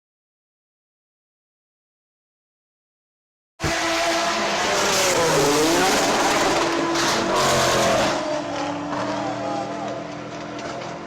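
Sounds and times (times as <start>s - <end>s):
race car engines: 3.6s - 11.0s
road and tyre noise: 3.6s - 11.0s.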